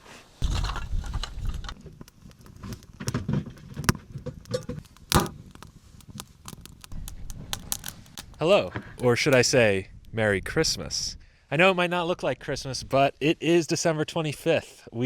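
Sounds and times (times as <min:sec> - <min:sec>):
small objects clicking and jingling: 0:03.8 - 0:08.4.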